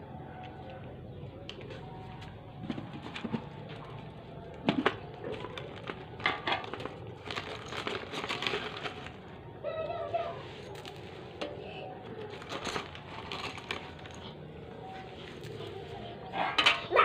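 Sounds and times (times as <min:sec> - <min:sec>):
cats crunching food: 0:00.6 - 0:09.4, 0:12.1 - 0:16.5.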